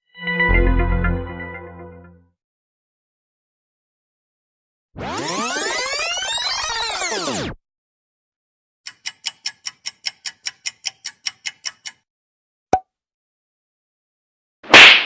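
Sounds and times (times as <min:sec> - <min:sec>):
clock ticking: 0:08.9 - 0:12.0.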